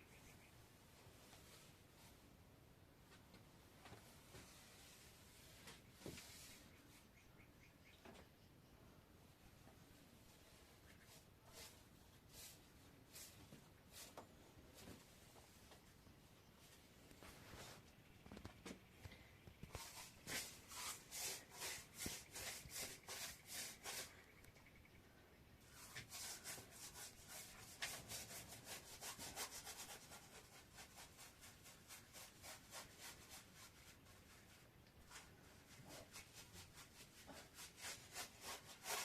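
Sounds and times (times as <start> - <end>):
rubbing or scraping strokes: 4.0 - 7.1, 10.0 - 15.7, 19.6 - 24.4, 25.6 - 39.0.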